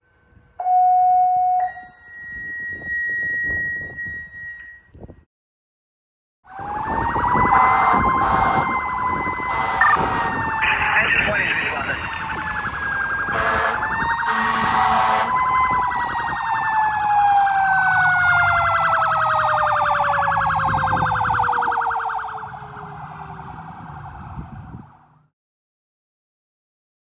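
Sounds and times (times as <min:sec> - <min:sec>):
mechanical siren winding down: 0:06.5 - 0:25.1
truck engine rumble: 0:06.7 - 0:25.3
air horn blasts: 0:09.4 - 0:11.8, 0:13.3 - 0:15.4.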